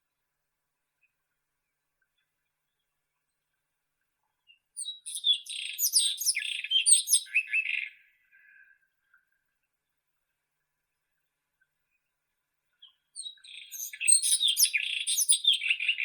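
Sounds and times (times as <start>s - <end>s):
robin singing: 4.4s - 8.4s, 12.7s - 16.0s.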